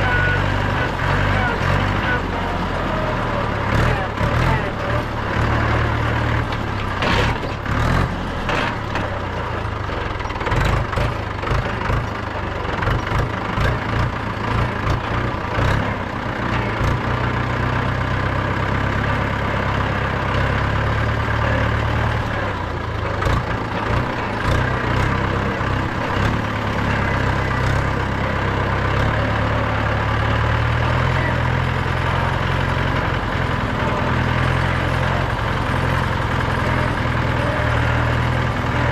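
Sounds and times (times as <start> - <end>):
engine rattles and knocks: 0.0 - 38.9
tractor diesel engine droning: 0.0 - 38.9.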